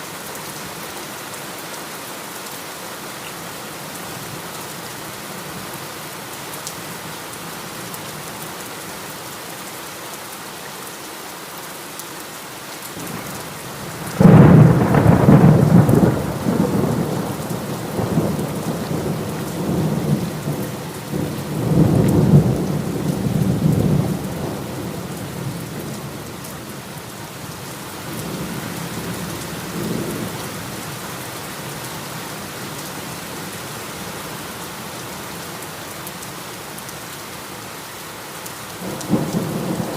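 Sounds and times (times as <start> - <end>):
heavy rain: 0.0 - 39.9
thunder clap and rumbling: 14.1 - 24.8, 38.8 - 39.9.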